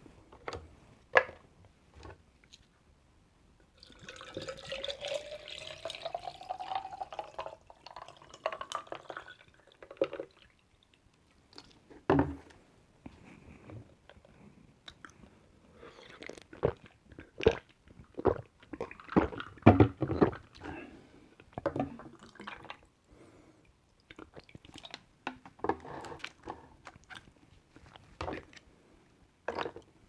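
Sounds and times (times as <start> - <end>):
juice pouring into a glass: 3.8 - 10.5.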